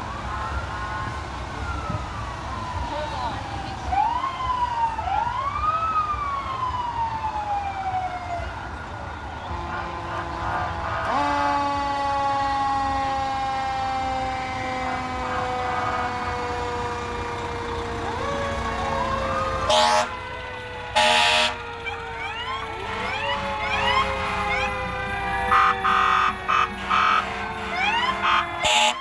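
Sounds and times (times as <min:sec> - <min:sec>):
fire truck sirens wailing: 0:00.0 - 0:29.0
loud short horn blasts: 0:25.6 - 0:29.0.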